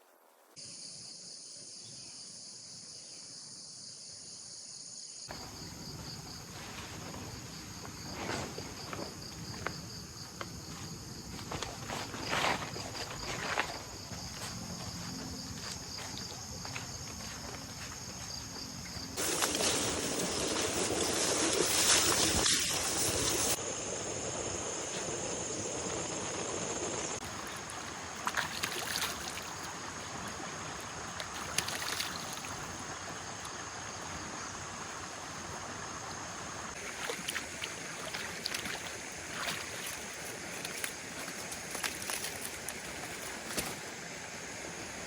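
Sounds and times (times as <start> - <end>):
insects chirring: 0.6 - 45.0
water sloshing and trickling: 18.8 - 23.6, 27.2 - 45.0
small water splashes: 27.2 - 45.0.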